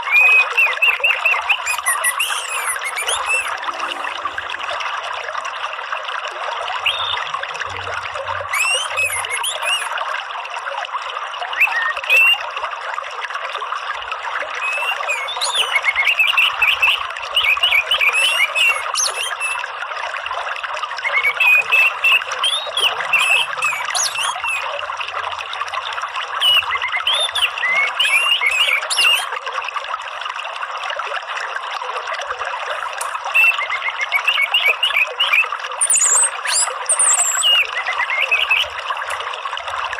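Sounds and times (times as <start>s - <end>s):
songbird chirping and trilling: 0.0s - 4.1s, 6.8s - 7.3s, 8.4s - 9.9s, 11.6s - 12.4s, 14.6s - 19.6s, 21.0s - 24.8s, 26.4s - 29.3s, 33.0s - 38.8s
running water: 0.0s - 39.9s.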